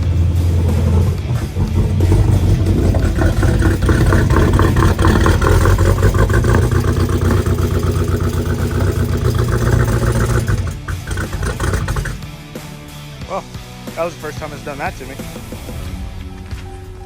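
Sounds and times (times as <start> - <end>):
car engine rough idle misfiring: 0.0 - 12.4.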